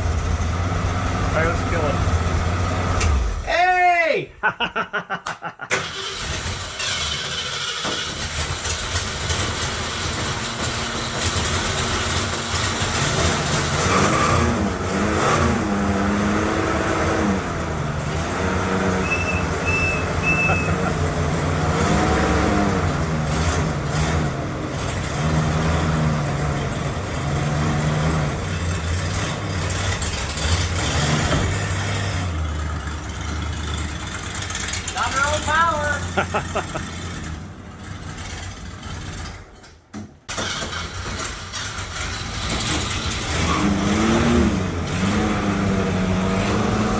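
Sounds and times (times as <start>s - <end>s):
engine revving and idling: 0.0s - 3.5s, 5.8s - 39.4s, 40.4s - 46.9s
short high chirps: 19.0s - 20.9s.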